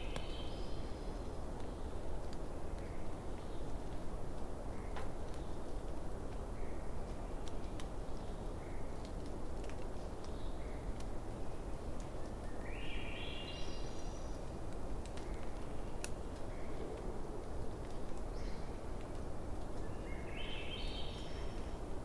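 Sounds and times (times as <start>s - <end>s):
bonfire crackling and popping: 9.0s - 11.2s, 14.6s - 16.5s.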